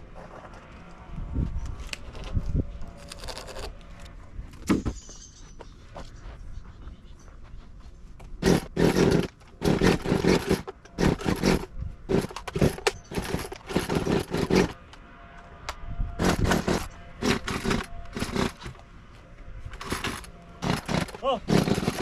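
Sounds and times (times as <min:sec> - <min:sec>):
chainsaw pull-start cranking: 0:08.4 - 0:14.8, 0:16.2 - 0:18.7, 0:19.8 - 0:22.0.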